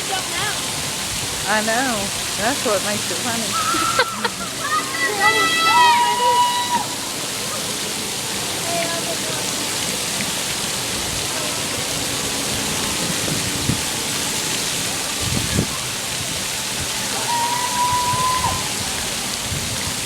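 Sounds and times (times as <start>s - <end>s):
steady rushing noise: 6.8s - 17.1s.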